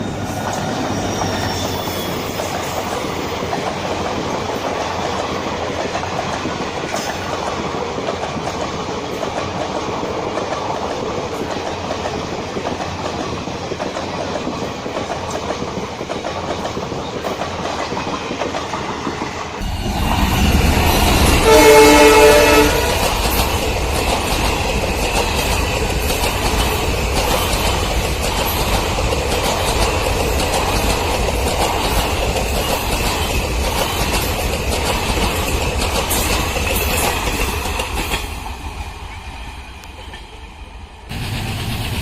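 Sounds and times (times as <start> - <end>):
train wheels clattering on rails: 0.0 - 42.0
locomotive horn: 21.4 - 23.1.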